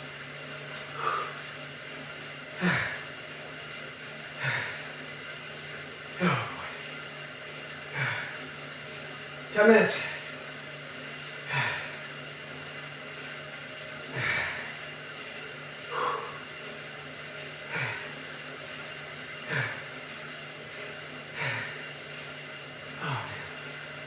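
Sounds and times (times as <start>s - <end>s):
steady low hum: 0.0s - 24.0s
man breathing hard: 0.9s - 1.5s, 2.6s - 3.1s, 4.3s - 5.0s, 6.2s - 6.8s, 7.9s - 8.5s, 11.4s - 12.2s, 14.1s - 14.9s, 15.8s - 16.6s, 17.6s - 18.4s, 19.4s - 20.1s, 21.2s - 22.2s, 23.0s - 23.9s.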